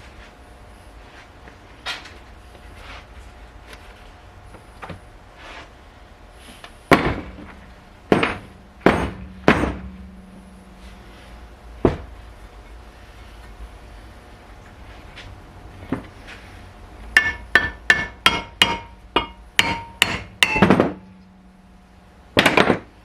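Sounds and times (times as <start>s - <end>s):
hammer striking metal: 8.1s - 10.9s, 17.2s - 21.3s.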